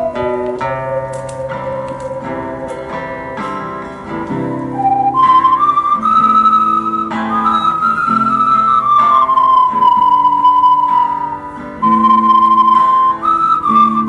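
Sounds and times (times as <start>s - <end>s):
ocarina melody: 0.0s - 14.0s
plucked guitar chords: 0.0s - 14.0s.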